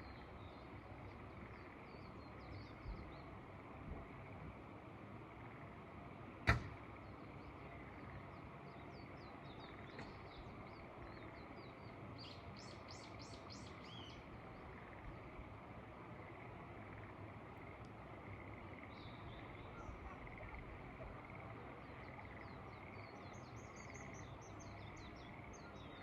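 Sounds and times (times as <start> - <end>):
small birds chirping: 18.4 - 26.0.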